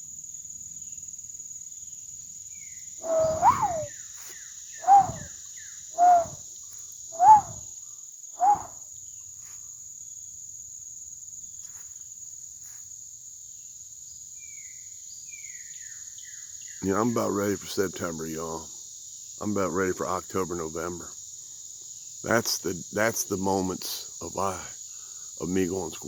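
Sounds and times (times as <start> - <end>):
crickets and insects chorus: 0.0 - 26.0
bird high chirps: 3.0 - 3.9, 4.8 - 5.3, 6.0 - 6.4, 7.2 - 7.6, 8.4 - 8.7
cuckoo hollow calls: 3.0 - 3.9, 4.8 - 5.3, 6.0 - 6.4, 7.2 - 7.6, 8.4 - 8.7.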